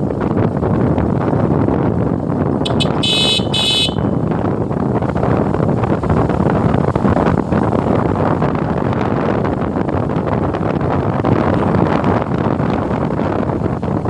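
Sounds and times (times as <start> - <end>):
motorcycle engine: 0.0 - 13.9
road noise: 0.0 - 14.0
wind rushing over microphone: 0.0 - 14.0.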